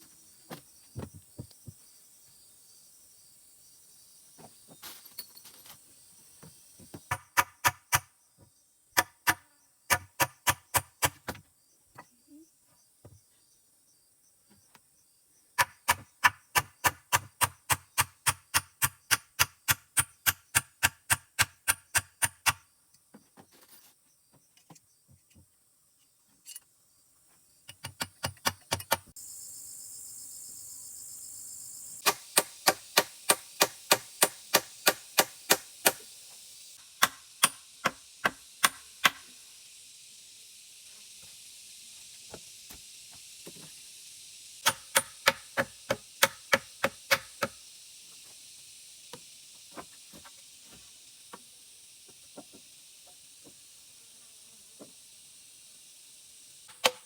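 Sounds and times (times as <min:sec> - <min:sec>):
steady hiss: 0:29.1 - 0:57.0
rapid chopping: 0:32.0 - 0:36.1.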